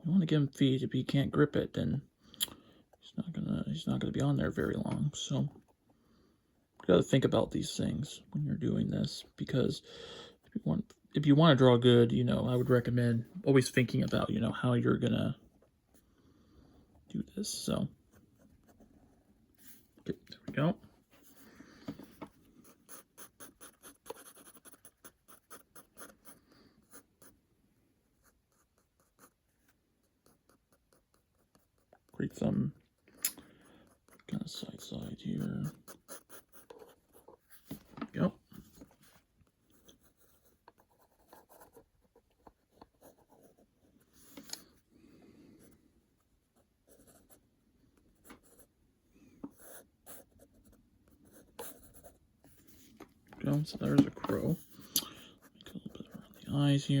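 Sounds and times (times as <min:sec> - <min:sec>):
pen drawing on paper: 0:22.1 - 0:27.4
pen scratching on paper: 0:22.1 - 0:27.4, 0:28.1 - 0:32.1, 0:33.8 - 0:37.8, 0:38.8 - 0:44.6, 0:46.5 - 0:47.4, 0:49.5 - 0:52.9.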